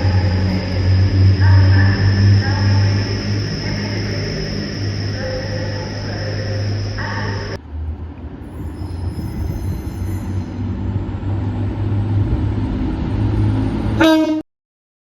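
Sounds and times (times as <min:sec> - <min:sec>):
train rumbling: 0:00.0 - 0:14.4
train horn blast: 0:14.0 - 0:14.4.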